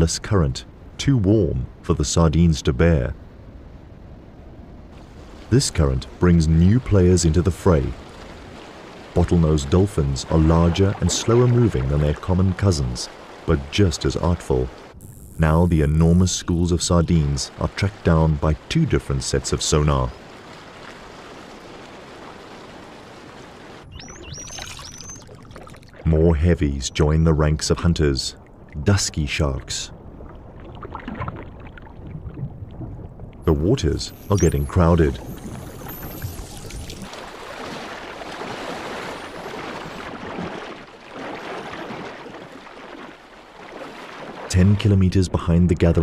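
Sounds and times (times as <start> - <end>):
underwater rush of water: 4.9 - 26.1, 30.0 - 44.9
dolphin whistles: 23.9 - 25.3.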